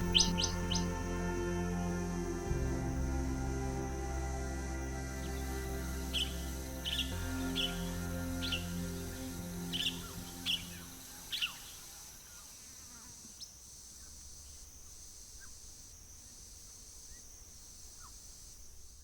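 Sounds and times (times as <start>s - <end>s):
high insect drone: 0.0s - 19.0s
birds chirping sharply: 6.1s - 12.4s.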